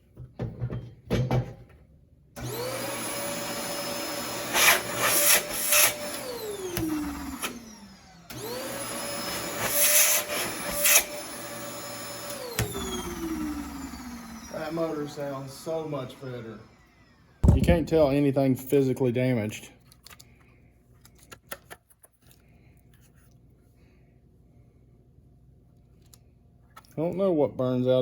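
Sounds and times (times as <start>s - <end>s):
shop vac motor whine: 2.4s - 17.8s.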